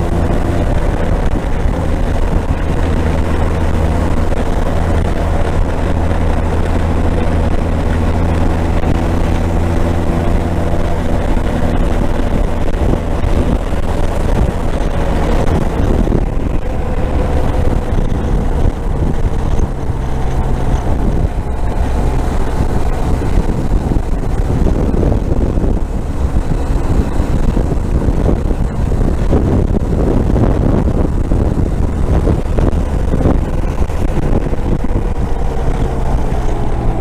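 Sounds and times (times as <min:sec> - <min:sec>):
motorcycle engine running: 0:00.0 - 0:37.0
wind rushing over microphone: 0:00.0 - 0:37.0.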